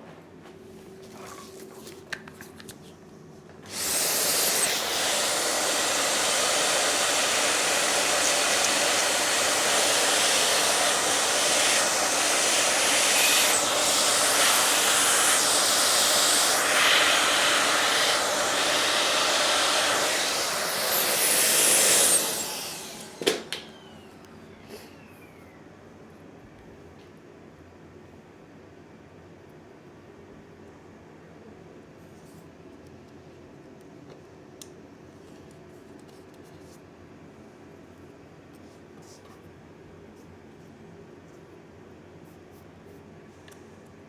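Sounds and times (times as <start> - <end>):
power tool running with airy hiss: 3.7 - 25.4.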